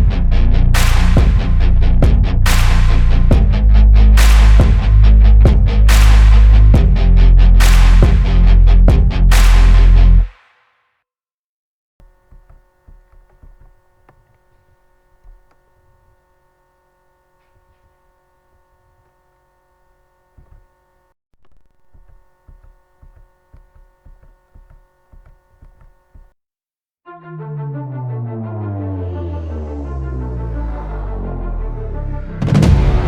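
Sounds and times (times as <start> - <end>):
soft low thumps: 4.6 - 6.0.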